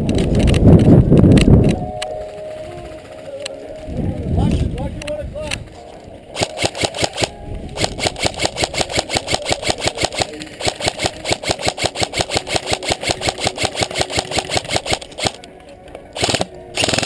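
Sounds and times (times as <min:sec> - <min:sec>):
airsoft gun automatic fire: 0:06.4 - 0:15.4, 0:16.2 - 0:17.0.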